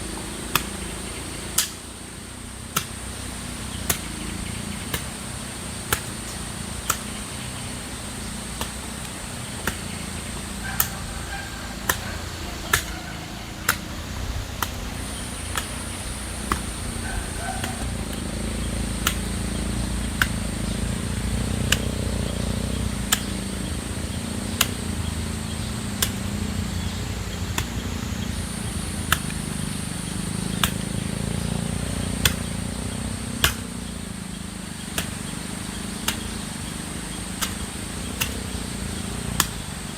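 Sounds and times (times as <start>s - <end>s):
hand tool chopping strikes: 0.5s - 1.9s, 2.7s - 7.8s, 8.5s - 23.4s, 24.1s - 33.9s, 34.8s - 39.7s
high-pitched insect drone: 3.0s - 39.9s.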